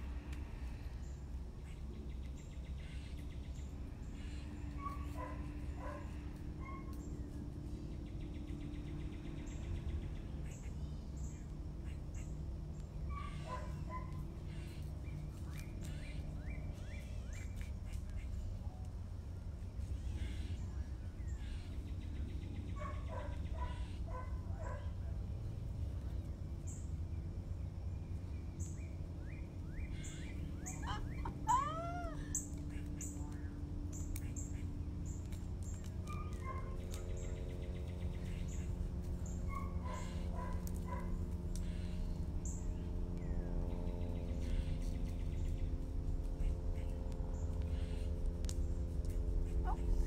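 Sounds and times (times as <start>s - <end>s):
birds chirping: 0.0s - 18.8s, 19.6s - 50.0s
loud arching bird call: 29.9s - 33.1s.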